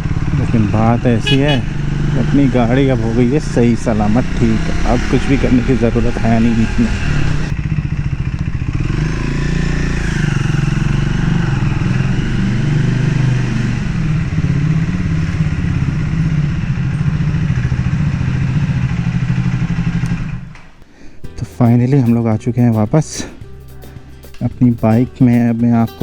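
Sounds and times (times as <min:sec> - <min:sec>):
motorcycle engine running: 0:00.0 - 0:20.6.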